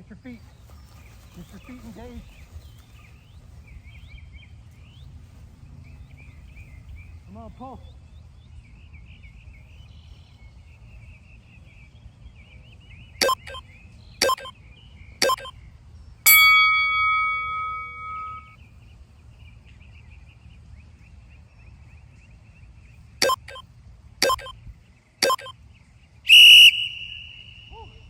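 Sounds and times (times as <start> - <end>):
timer short beeps: 13.2 - 13.6, 14.2 - 14.5, 15.2 - 15.5, 16.3 - 18.5, 23.2 - 23.6, 24.2 - 24.5, 25.2 - 25.5
loud bell tone ringing: 16.3 - 18.5.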